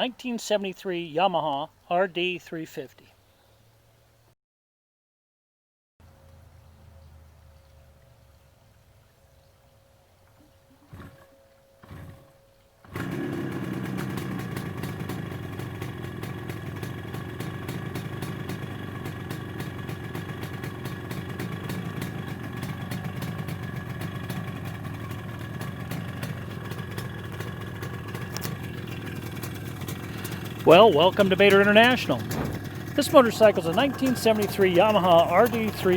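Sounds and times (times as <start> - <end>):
motorcycle engine idling: 12.8 - 35.9
thump: 32.2 - 32.7.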